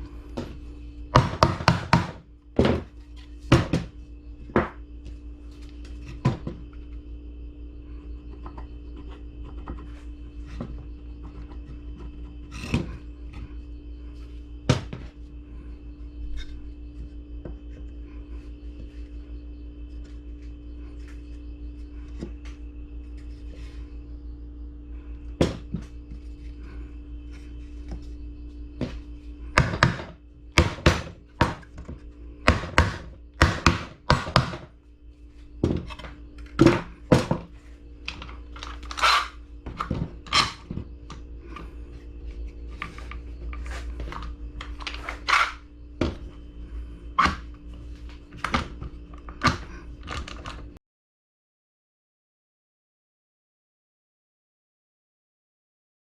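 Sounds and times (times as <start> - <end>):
steady low hum: 0.0 - 50.8
wood knocking: 1.1 - 4.8.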